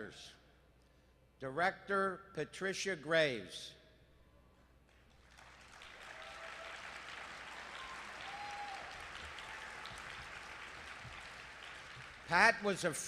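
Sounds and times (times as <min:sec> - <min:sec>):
audience applauding: 0:05.0 - 0:12.7.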